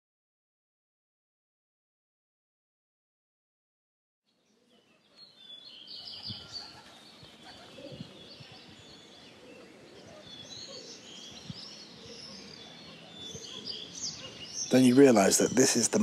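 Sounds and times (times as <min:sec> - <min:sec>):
birds chirping and screeching: 0:04.5 - 0:16.0.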